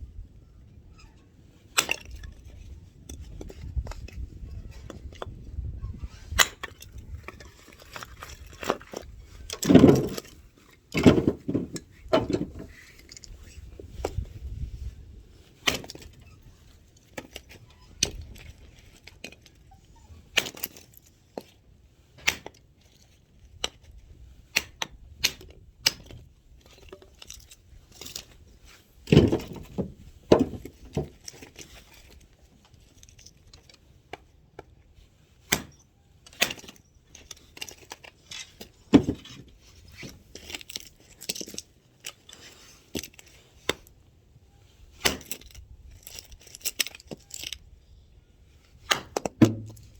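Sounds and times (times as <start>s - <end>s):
split wood knocking together: 8.2s - 10.3s, 29.1s - 31.2s, 48.9s - 49.9s
axe chopping wood: 9.6s - 10.2s, 15.6s - 16.0s, 35.5s - 35.8s, 45.0s - 45.4s, 48.8s - 49.9s.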